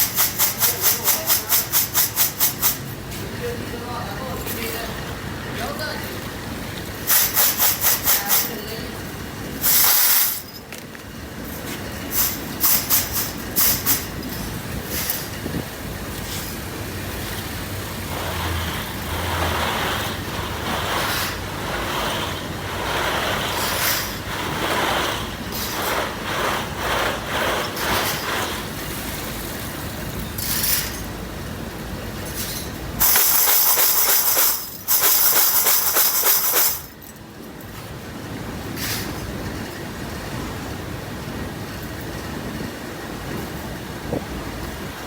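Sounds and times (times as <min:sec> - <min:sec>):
loud hissing bursts: 0:00.0 - 0:03.4, 0:06.3 - 0:10.4, 0:12.1 - 0:30.7, 0:32.9 - 0:36.9
factory machinery clattering: 0:00.0 - 0:42.6.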